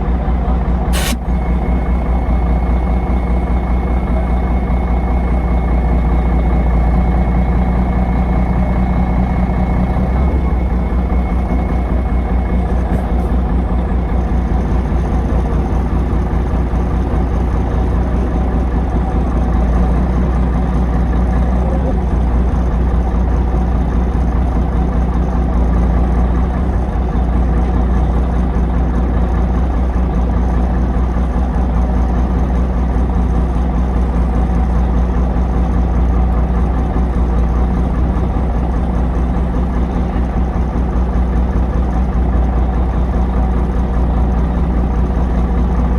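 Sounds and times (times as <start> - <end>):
heavy truck engine running: 0.0 - 45.9.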